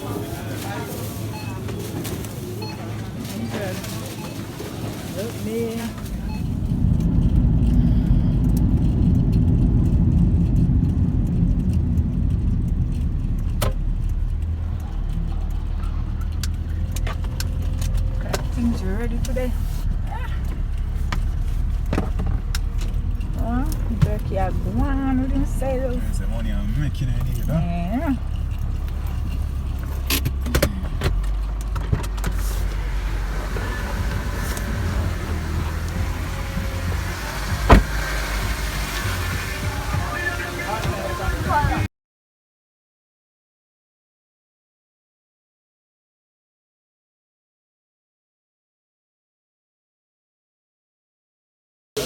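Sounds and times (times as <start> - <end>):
car road and engine rumble: 0.0 - 41.9
sharp clicks and knocks: 8.4 - 25.0.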